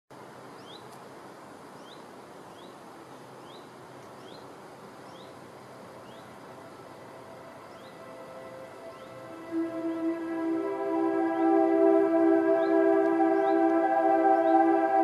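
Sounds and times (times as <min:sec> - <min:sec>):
steady outdoor hiss: 0:00.1 - 0:15.0
small bird chirping: 0:00.6 - 0:01.0, 0:01.8 - 0:02.8, 0:03.4 - 0:05.4.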